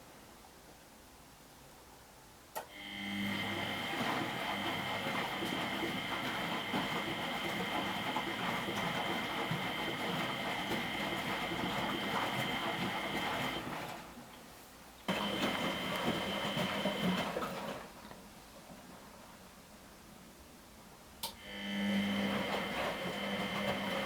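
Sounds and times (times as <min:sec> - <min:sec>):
water rushing into washing machine: 0:03.1 - 0:14.3, 0:15.1 - 0:18.0, 0:21.4 - 0:24.0.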